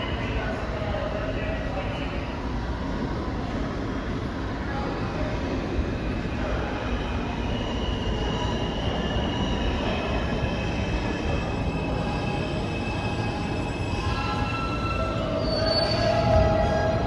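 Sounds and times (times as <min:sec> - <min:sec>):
subway train wheels rumbling: 0:00.0 - 0:17.0
high wheel squeal: 0:07.4 - 0:17.0.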